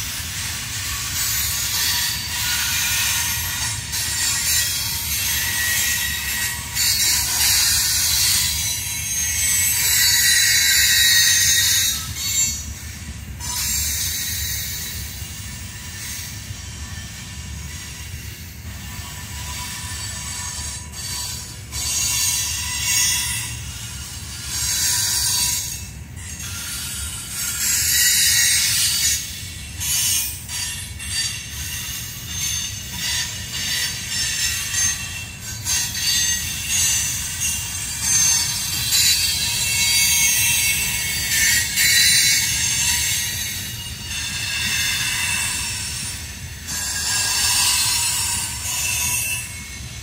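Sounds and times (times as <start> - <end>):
high-pitched wheel squeal: 0.0 - 50.0.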